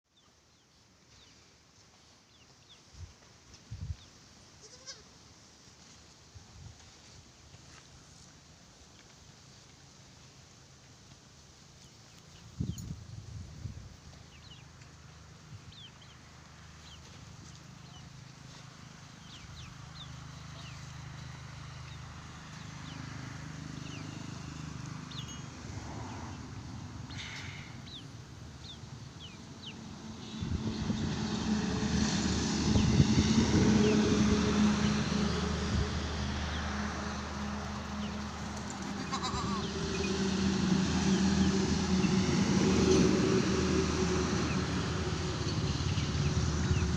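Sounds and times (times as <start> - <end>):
small birds chirping: 14.1 - 25.6, 26.2 - 31.4.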